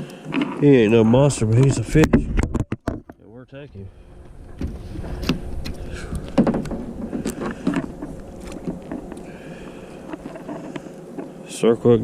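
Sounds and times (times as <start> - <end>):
rustling: 3.8 - 11.7.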